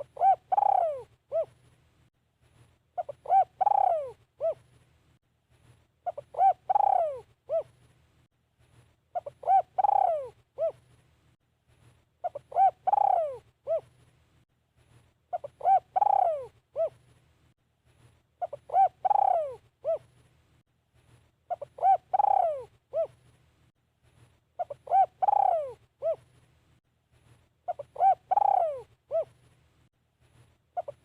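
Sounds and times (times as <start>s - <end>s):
dove cooing: 0.0s - 1.6s, 3.0s - 4.7s, 6.0s - 7.8s, 9.1s - 10.8s, 12.2s - 13.9s, 15.3s - 17.0s, 18.4s - 20.1s, 21.5s - 23.2s, 24.6s - 26.3s, 27.7s - 29.4s, 30.8s - 31.0s.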